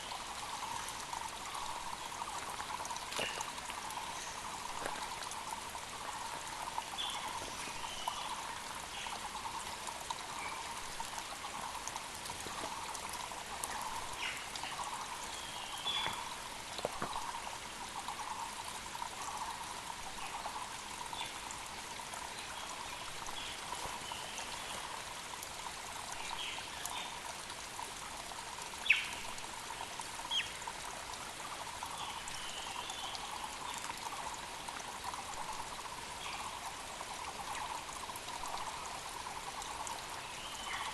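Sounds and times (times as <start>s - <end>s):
mountain creek flowing: 0.0s - 40.9s.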